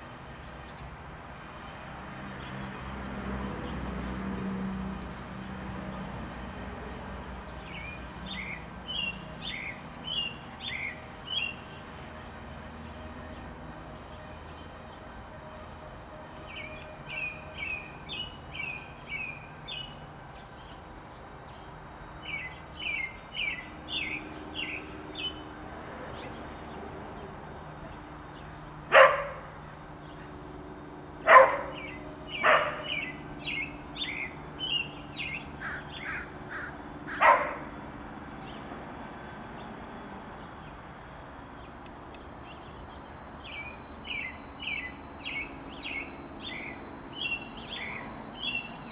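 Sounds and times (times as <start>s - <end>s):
robins singing: 7.5s - 11.6s, 22.2s - 48.9s
dog barking: 28.9s - 29.5s, 31.3s - 33.0s, 37.1s - 37.7s.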